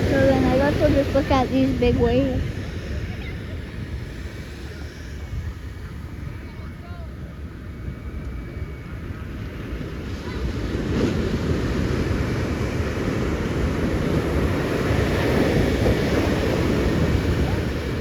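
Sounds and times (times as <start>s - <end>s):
ocean waves crashing: 0.0s - 2.9s, 9.6s - 18.0s.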